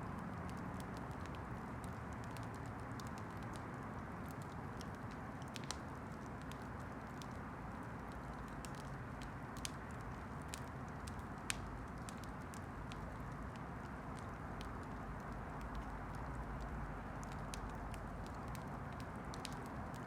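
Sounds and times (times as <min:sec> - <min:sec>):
fire crackling and popping: 0:00.1 - 0:20.0.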